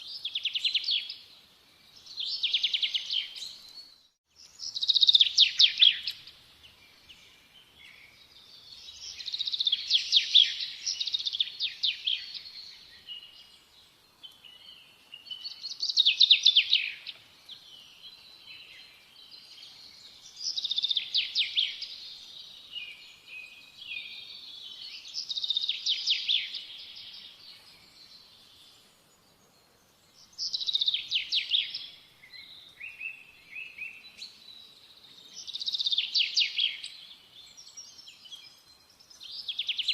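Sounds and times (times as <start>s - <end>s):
songbird trilling: 30.2s - 34.3s.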